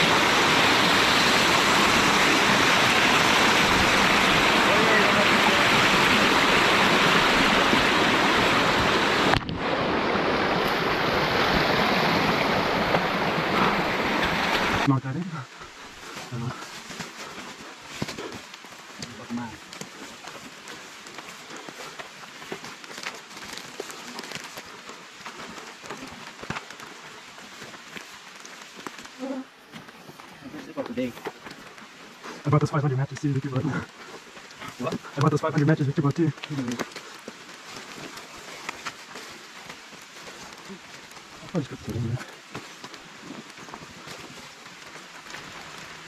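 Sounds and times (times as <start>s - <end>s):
waterfall rushing: 0.0s - 15.6s
rain drops ticking on surface: 0.0s - 46.0s.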